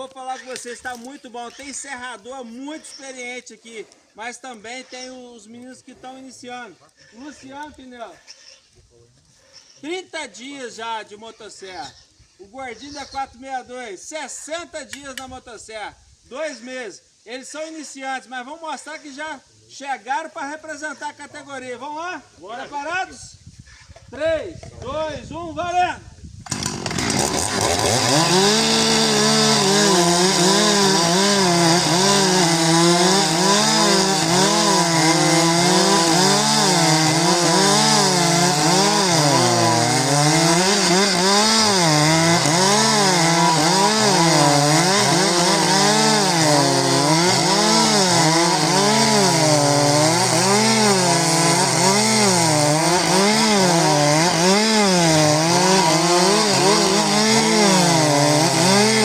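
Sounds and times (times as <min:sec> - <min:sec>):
chainsaws cutting logs: 0:00.0 - 0:04.0, 0:26.4 - 0:59.0.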